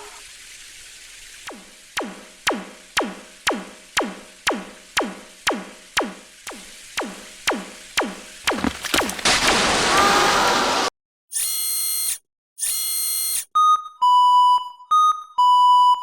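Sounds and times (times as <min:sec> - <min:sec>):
synth drum zaps: 0:01.5 - 0:10.2.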